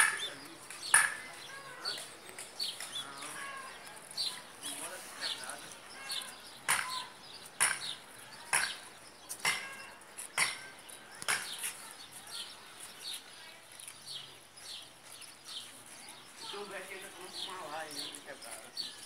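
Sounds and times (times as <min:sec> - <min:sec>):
soft bird chirps: 0:00.0 - 0:19.0
bird calls falling in pitch: 0:06.0 - 0:07.2.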